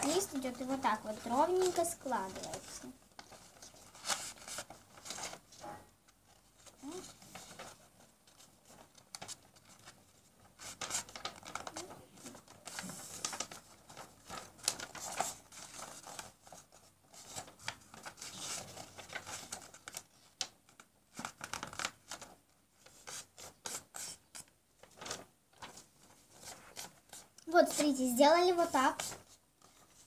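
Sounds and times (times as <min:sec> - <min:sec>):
paper crease scraping: 0:00.0 - 0:05.8, 0:21.2 - 0:30.0
paper folding and rustling: 0:00.0 - 0:30.0.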